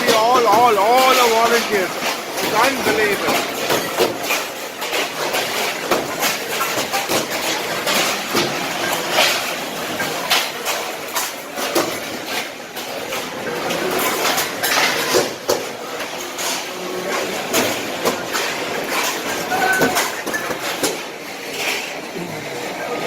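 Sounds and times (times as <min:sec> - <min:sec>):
metal plates clattering: 0:00.0 - 0:22.6.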